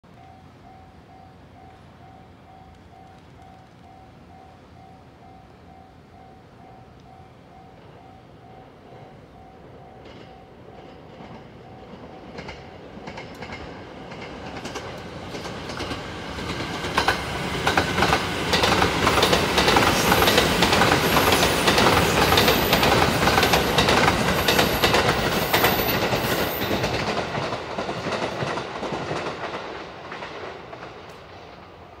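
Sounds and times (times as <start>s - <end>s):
train wheels clacking over rail joints: 10.0s - 31.7s.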